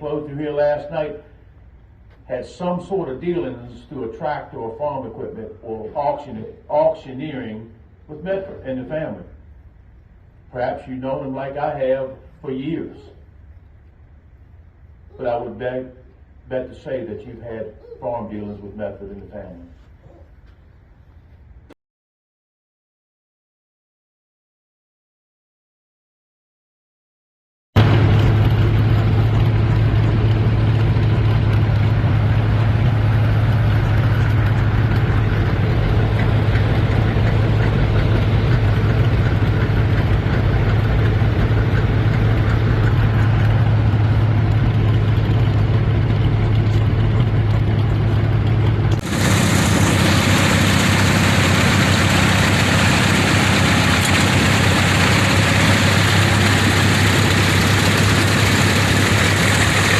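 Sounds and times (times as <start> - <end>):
brighter noisier engine sound: 0.0 - 21.8, 27.8 - 59.9
tractor engine humming: 27.8 - 59.9.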